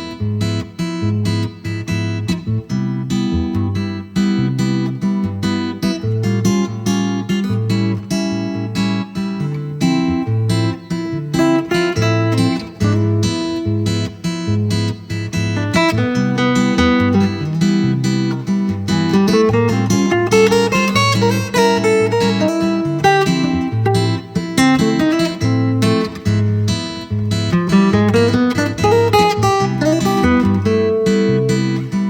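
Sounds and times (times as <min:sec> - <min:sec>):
guitar chord pattern with bass line: 0:00.0 - 0:32.0
guitar single-note solo: 0:09.4 - 0:32.0.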